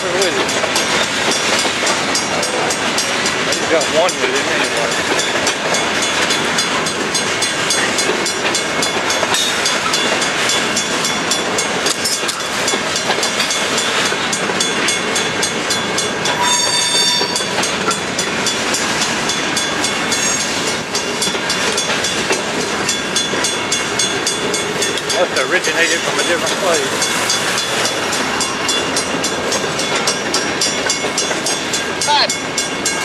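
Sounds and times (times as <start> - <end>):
freight train rolling by: 0.0 - 33.0
wheels clicking on rail: 0.0 - 33.0
high wheel squeal: 16.3 - 18.0, 19.6 - 20.6.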